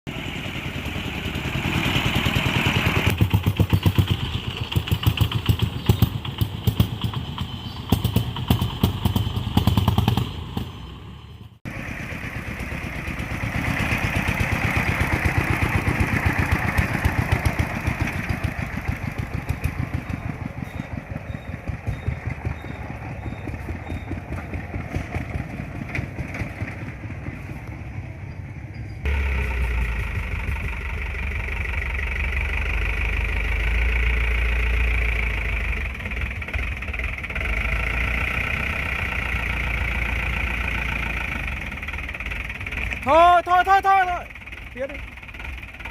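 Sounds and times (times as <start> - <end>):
vehicle engine running: 0.1 - 45.9.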